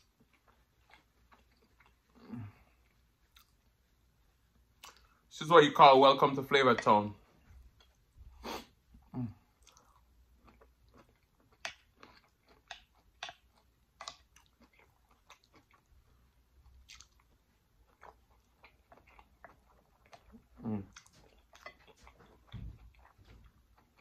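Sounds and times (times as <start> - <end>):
wet chewing with mouth clicks: 0.0 - 3.9, 4.7 - 5.3, 7.5 - 24.0.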